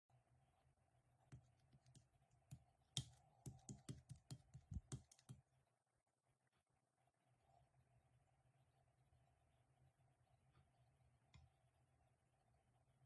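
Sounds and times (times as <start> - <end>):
faint irregular clicking: 1.3 - 5.4.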